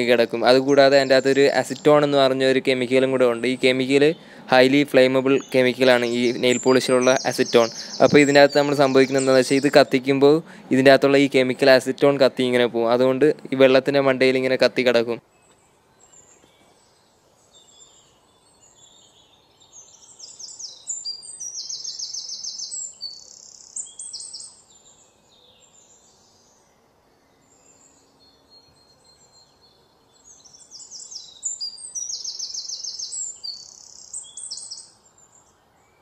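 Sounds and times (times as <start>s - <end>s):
faint steady hiss: 0.0s - 36.0s
small birds chirping and trilling: 0.0s - 36.0s.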